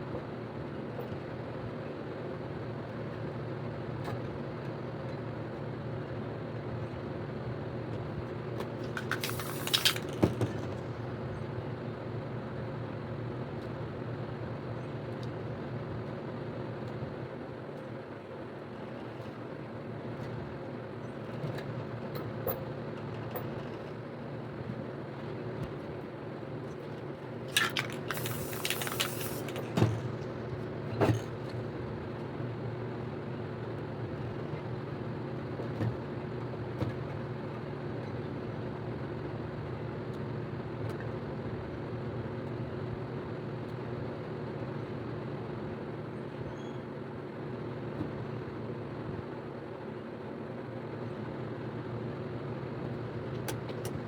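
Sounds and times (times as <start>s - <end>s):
spray paint can hiss: 9.0s - 10.2s, 27.5s - 29.8s.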